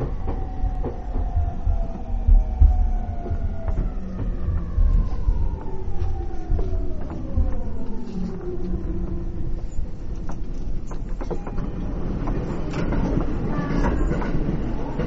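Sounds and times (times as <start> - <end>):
train rolling rumble: 0.0 - 15.0
rail-joint clicks: 6.9 - 15.0.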